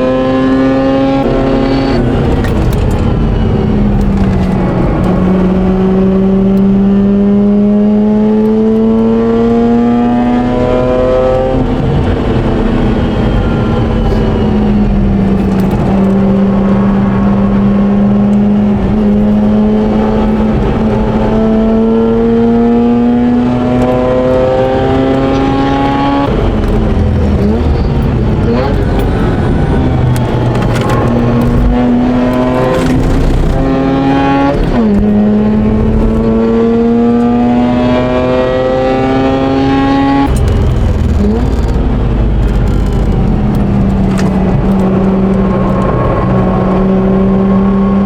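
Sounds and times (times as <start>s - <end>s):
rotary engine accelerating hard: 0.0s - 48.0s.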